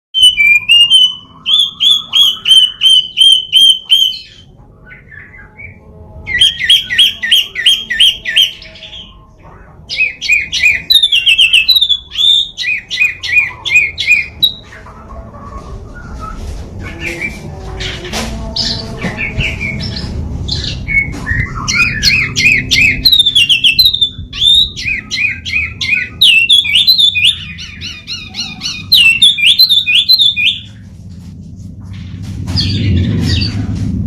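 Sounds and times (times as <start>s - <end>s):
bird whistling song: 0.2s - 9.2s, 9.9s - 15.2s, 15.9s - 30.8s.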